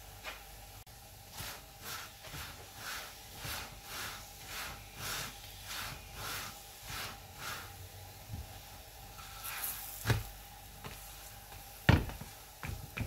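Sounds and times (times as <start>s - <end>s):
flatbread sizzling in oil: 9.1s - 10.4s.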